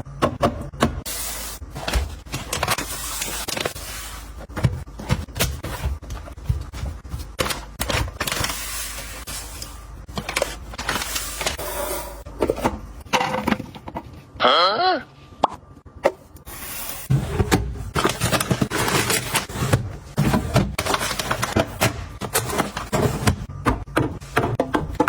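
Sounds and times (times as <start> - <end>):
packaging rustling: 1.8 - 11.6, 17.8 - 21.6.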